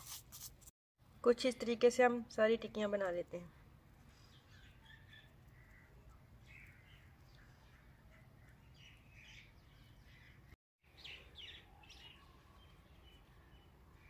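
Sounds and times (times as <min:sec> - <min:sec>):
small birds chirping: 0:03.6 - 0:14.0.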